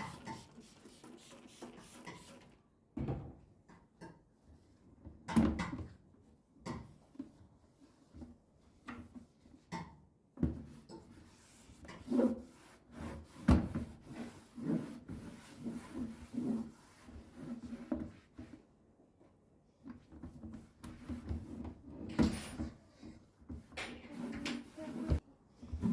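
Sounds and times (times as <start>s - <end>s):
rubbing strokes on hard surface: 0.0s - 2.5s, 11.2s - 18.3s, 24.1s - 25.2s.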